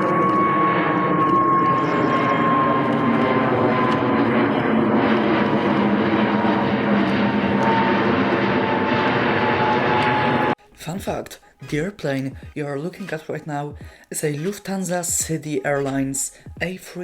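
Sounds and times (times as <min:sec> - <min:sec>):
jet airliner engine roar: 0:00.0 - 0:10.6.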